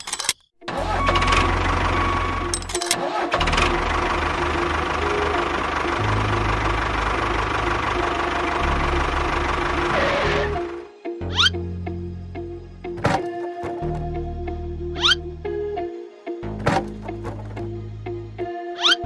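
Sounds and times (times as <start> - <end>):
engine humming: 0.0 - 11.6, 12.8 - 14.2, 16.5 - 18.2.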